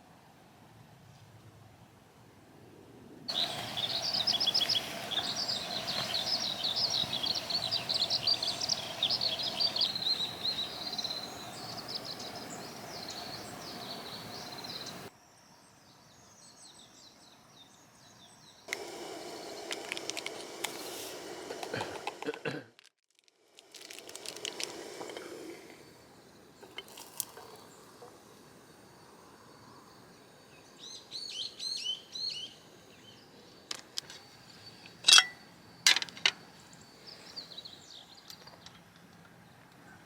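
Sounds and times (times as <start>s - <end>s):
songbirds twittering: 3.3s - 15.1s, 30.5s - 39.7s.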